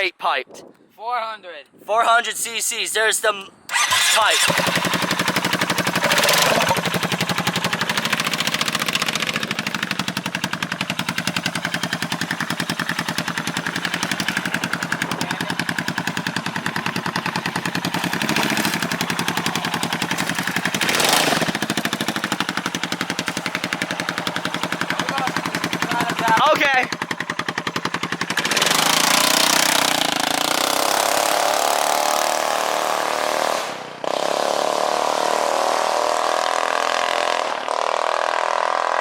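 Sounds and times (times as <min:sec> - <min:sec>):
scooter engine idling: 0:03.7 - 0:30.7
exhaust popping: 0:03.7 - 0:31.8.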